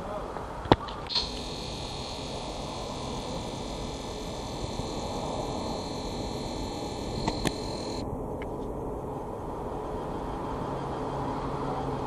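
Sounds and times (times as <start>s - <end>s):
sharp clicks: 1.0s - 8.0s
high hiss: 1.1s - 8.0s.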